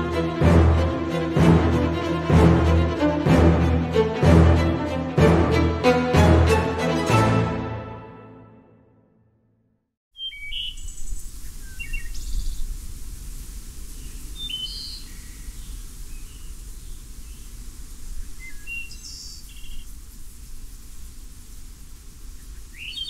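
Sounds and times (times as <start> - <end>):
small birds chirping: 10.1 - 12.8, 13.9 - 20.0, 22.2 - 23.0.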